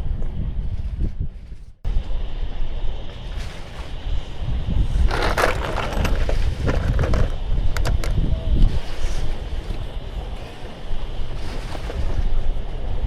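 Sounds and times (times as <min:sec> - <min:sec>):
wind buffeting microphone: 0:00.0 - 0:13.0
crackling rustle: 0:03.1 - 0:12.8.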